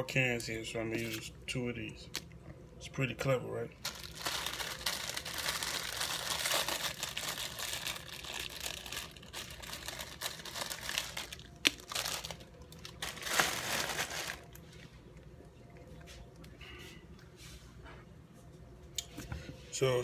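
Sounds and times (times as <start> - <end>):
plastic packaging crinkling: 3.8 - 14.9.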